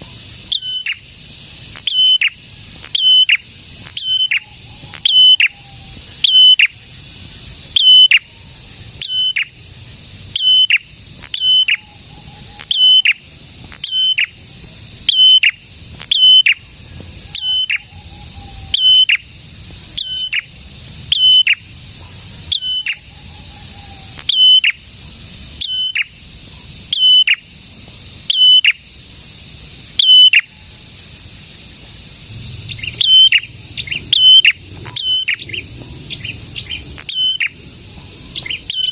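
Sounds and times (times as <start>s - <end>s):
bird call with downward sweep: 0.0s - 6.8s, 7.7s - 9.6s, 10.3s - 14.4s, 15.1s - 19.4s, 20.0s - 21.7s, 22.5s - 24.9s, 25.6s - 26.1s, 26.9s - 27.5s, 28.3s - 28.8s, 30.0s - 30.8s, 32.2s - 38.9s.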